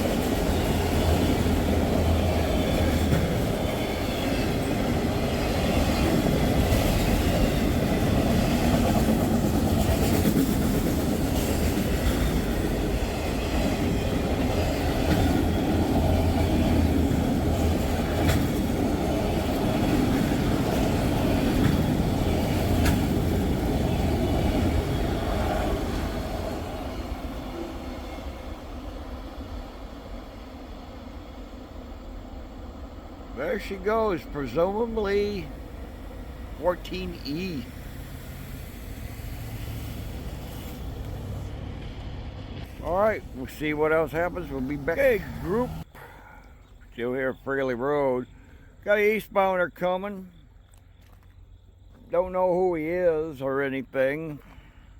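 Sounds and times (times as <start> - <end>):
wheels clicking over rail joints: 0.0 - 27.8
train cars rolling past: 0.0 - 46.0.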